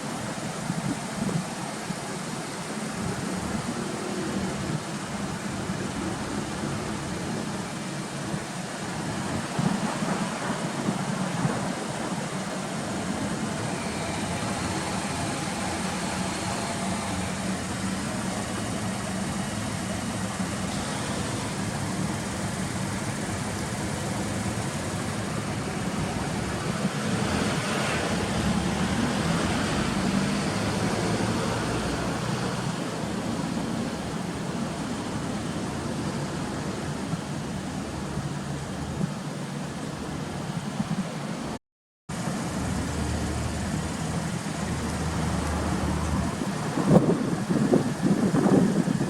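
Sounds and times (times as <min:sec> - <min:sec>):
car engine idling: 0:10.7 - 0:26.9.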